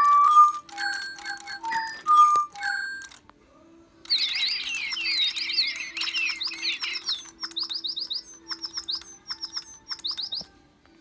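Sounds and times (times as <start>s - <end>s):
small bird chirping rapidly: 4.1s - 10.5s.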